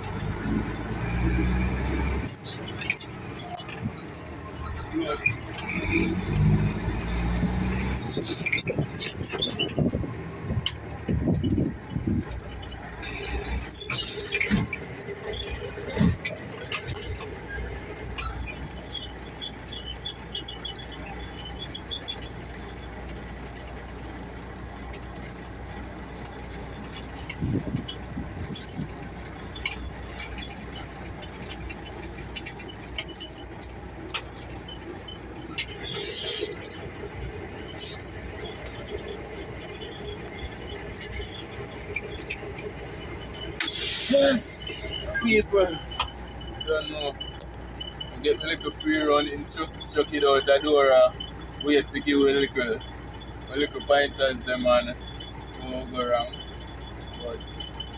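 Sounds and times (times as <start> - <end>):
truck engine rumble: 0.0 - 57.9
brief high squeals: 34.7 - 36.7, 43.2 - 48.2.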